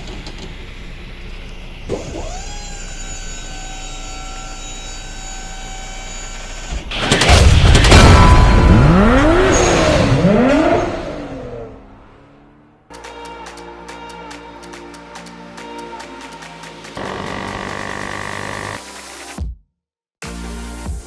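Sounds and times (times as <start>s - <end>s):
loud boom: 7.3s - 12.5s
engine revving: 8.6s - 12.9s.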